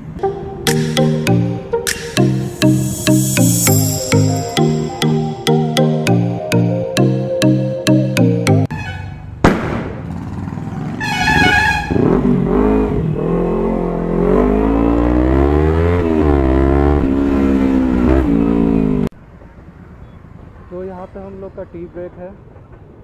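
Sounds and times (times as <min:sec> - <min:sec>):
motorcycle engines revving: 0:10.0 - 0:11.0, 0:11.8 - 0:19.1.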